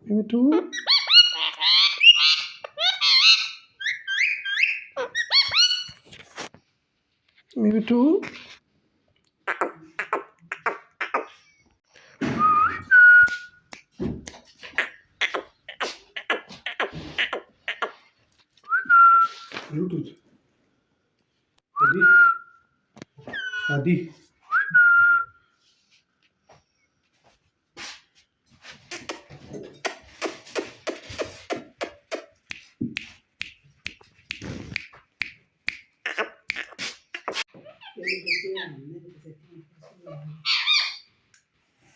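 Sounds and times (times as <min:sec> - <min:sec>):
parrot chattering: 0:00.5 - 0:05.9, 0:09.4 - 0:11.6, 0:14.6 - 0:18.1, 0:36.0 - 0:38.8
parakeet clicks and chirps: 0:28.9 - 0:37.4.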